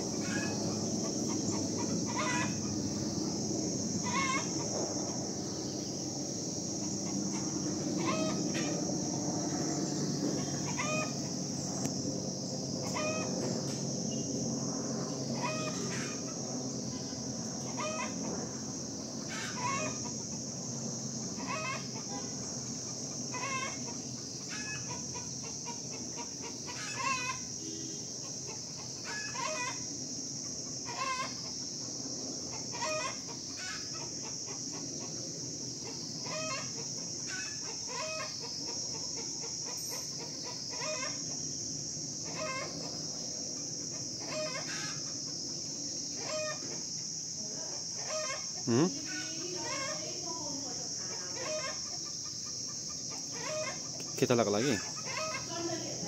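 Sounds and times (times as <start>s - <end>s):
high-pitched hiss: 39.6s - 55.9s.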